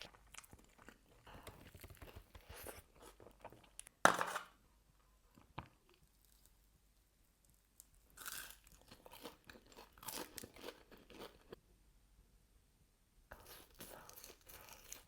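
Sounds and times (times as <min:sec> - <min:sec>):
wet crunching and smacking chewing: 0:13.4 - 0:15.0.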